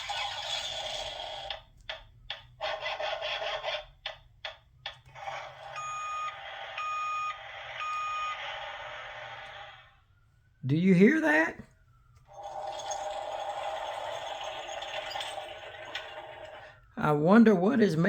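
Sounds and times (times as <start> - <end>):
vehicle reversing alarm beeps: 5.3 - 9.3.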